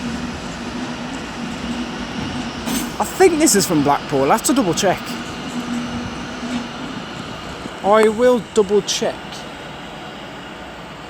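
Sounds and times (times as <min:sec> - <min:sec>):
electric train humming: 0:00.0 - 0:11.0
station background rumble: 0:00.0 - 0:11.0.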